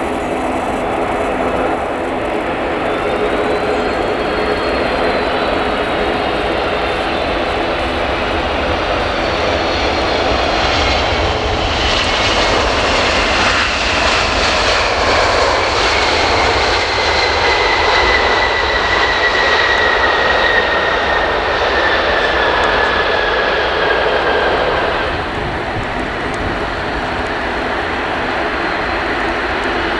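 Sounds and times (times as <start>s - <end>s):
jet airliner passing: 0.0s - 29.9s.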